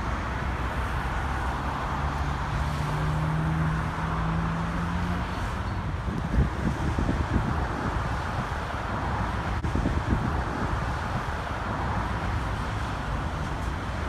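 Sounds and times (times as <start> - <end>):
street traffic rumble: 0.0 - 14.0
wind buffeting microphone: 5.3 - 14.0.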